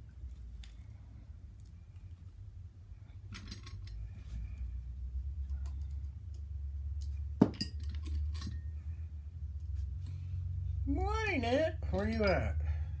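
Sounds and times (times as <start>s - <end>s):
steady low hum: 0.0s - 13.0s
metal parts clinking and rattling: 3.2s - 4.3s, 7.0s - 8.8s, 11.3s - 12.7s.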